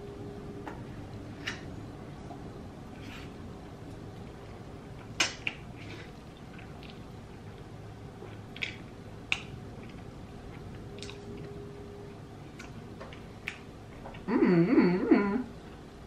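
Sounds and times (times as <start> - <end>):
chewing noodles: 5.0 - 11.5
woman humming mmm: 14.2 - 15.6.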